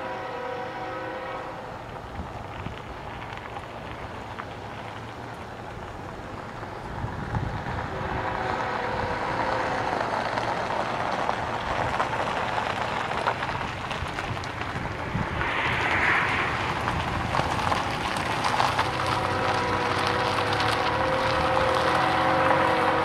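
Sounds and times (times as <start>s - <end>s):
train horn chord: 0.0s - 1.8s, 7.9s - 10.7s, 19.1s - 23.0s
diesel locomotives rumbling: 0.0s - 23.0s.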